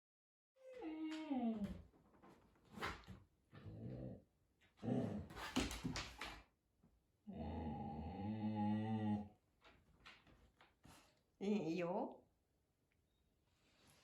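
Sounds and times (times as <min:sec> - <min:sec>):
dog grumbling: 0:04.8 - 0:05.4, 0:07.3 - 0:09.3.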